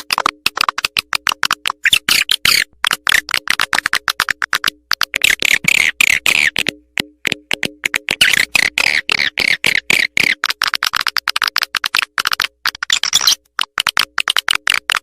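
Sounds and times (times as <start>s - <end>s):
swiftlets chirping and twittering: 12.8s - 13.4s.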